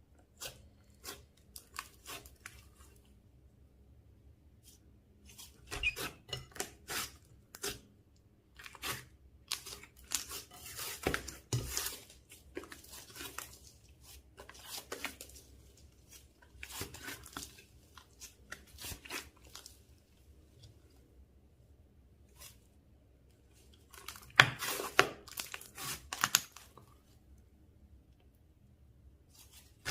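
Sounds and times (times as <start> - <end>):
slime crackling and squishing: 8.5 - 20.6, 23.5 - 26.8.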